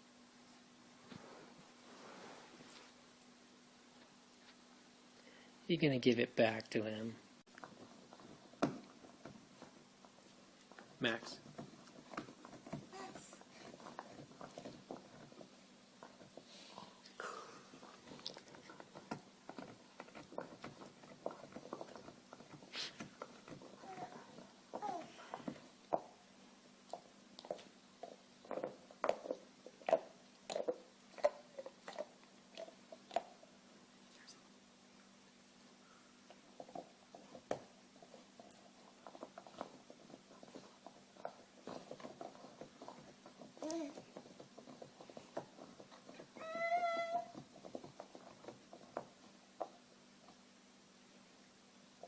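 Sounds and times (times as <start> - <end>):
dog chewing on a bone: 7.5 - 33.6, 36.2 - 50.5.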